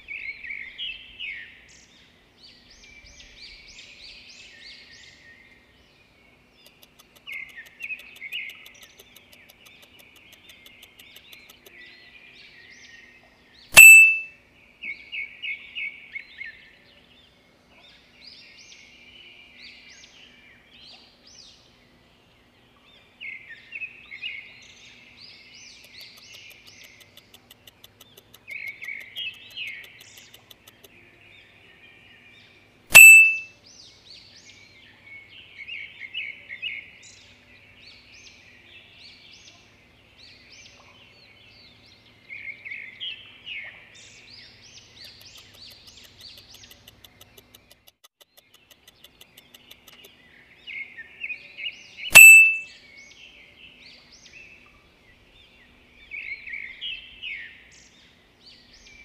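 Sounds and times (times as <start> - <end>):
songbird trilling: 6.6 - 11.9, 13.7 - 14.3, 32.9 - 33.5, 48.4 - 52.7
loud sharp ding: 13.8 - 14.3, 32.9 - 33.4, 52.1 - 52.6.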